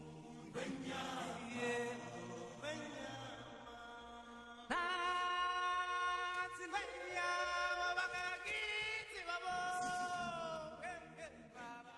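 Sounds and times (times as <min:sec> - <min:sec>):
chant-like held notes: 0:00.0 - 0:04.5.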